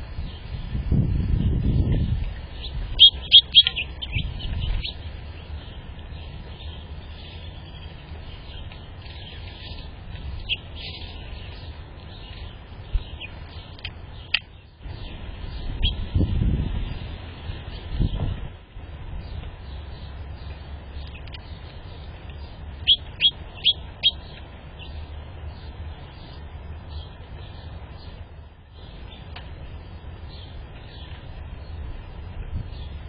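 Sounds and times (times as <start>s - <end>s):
low outdoor rumble: 0.0s - 33.0s
small birds chirping: 0.0s - 33.0s.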